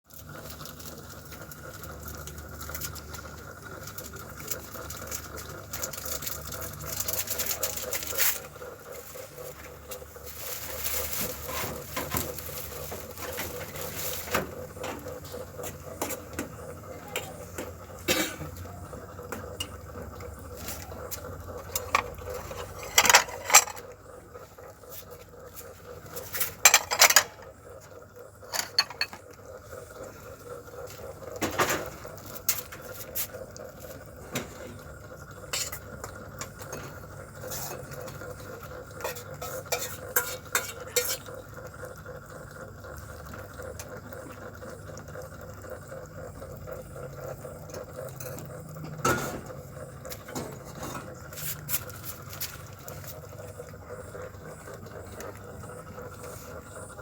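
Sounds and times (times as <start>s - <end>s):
food dish clinking and scraping: 21.6s - 24.0s, 26.1s - 27.5s, 28.5s - 29.2s, 39.0s - 41.3s
sharp clatters of dish: 21.8s - 23.8s, 26.6s - 27.4s, 28.5s - 29.2s.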